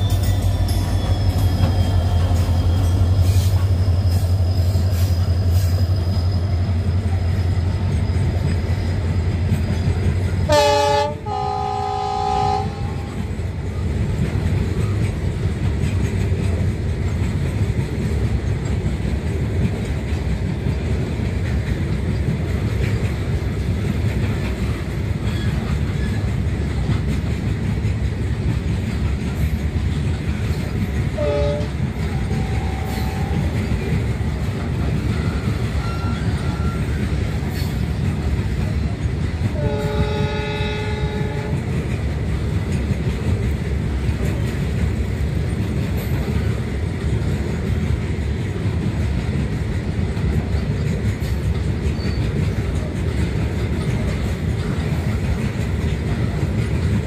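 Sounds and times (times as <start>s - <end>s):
diesel locomotive engine drone: 0.0s - 57.0s
train horn blast: 10.5s - 13.3s, 31.2s - 33.7s, 35.2s - 37.0s, 39.5s - 41.7s.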